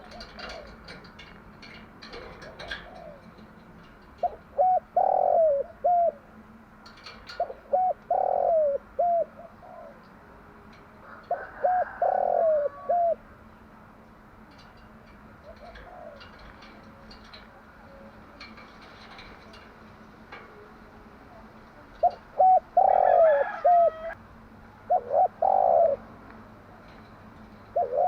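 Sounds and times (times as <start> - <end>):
dove cooing: 0.0 - 1.2, 2.1 - 3.6, 4.2 - 6.4, 7.0 - 10.2, 11.0 - 13.2, 15.3 - 26.6, 27.7 - 28.0.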